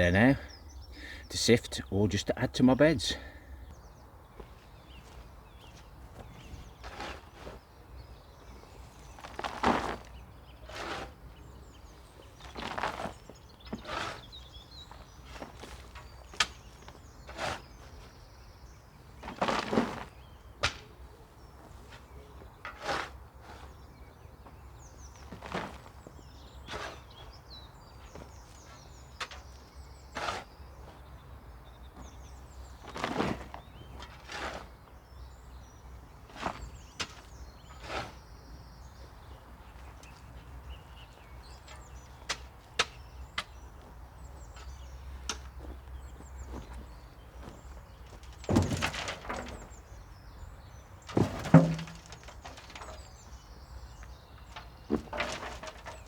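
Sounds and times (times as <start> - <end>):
wood chips shovelled and tipped: 6.7 - 7.6, 9.1 - 11.2, 12.4 - 14.3, 17.3 - 18.1, 19.2 - 20.2, 22.6 - 23.7, 32.9 - 34.8, 36.3 - 38.3, 48.1 - 49.8, 51.0 - 53.4, 54.5 - 56.0.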